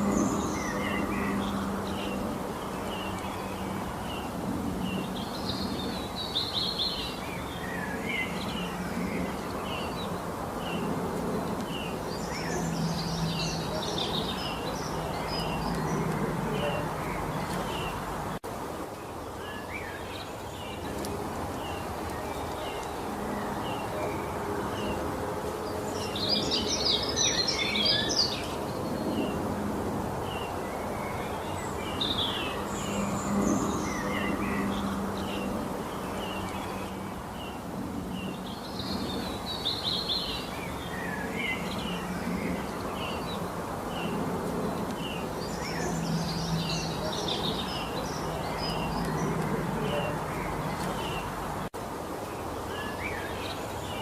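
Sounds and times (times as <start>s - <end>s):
birds twittering song: 0.0s - 54.0s.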